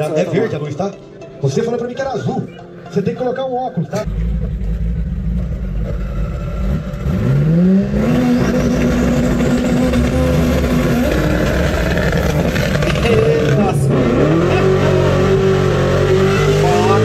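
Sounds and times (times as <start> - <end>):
car engine idling and revving: 4.0 - 17.0.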